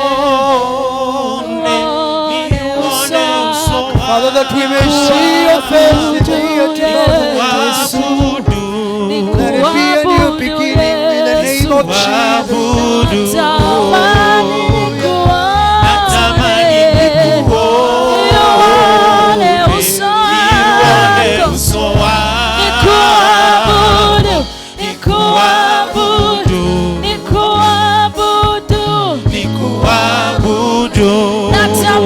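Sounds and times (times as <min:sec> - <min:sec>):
gospel singing: 0:00.0 - 0:32.0
steady bass line: 0:12.7 - 0:32.0.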